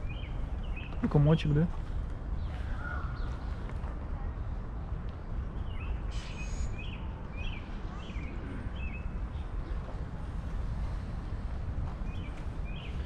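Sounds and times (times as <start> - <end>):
bird chirping: 0.0 - 1.5, 12.0 - 13.0
low outdoor rumble: 0.0 - 13.0.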